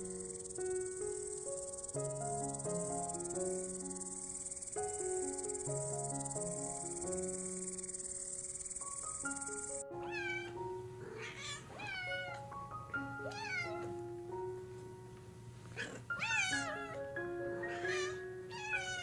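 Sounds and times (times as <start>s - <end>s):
cricket trilling: 0.0s - 9.9s
slow background music: 0.0s - 19.0s
cat meowing: 10.0s - 12.5s, 13.2s - 13.9s, 15.8s - 19.0s.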